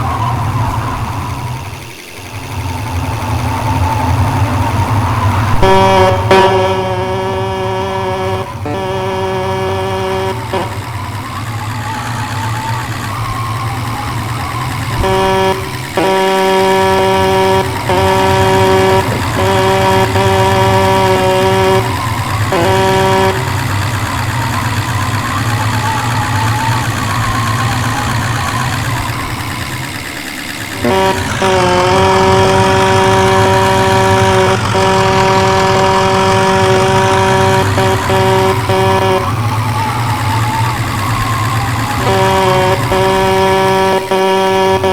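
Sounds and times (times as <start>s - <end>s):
engine hum: 0.0s - 44.9s
horn blasts: 0.0s - 44.9s.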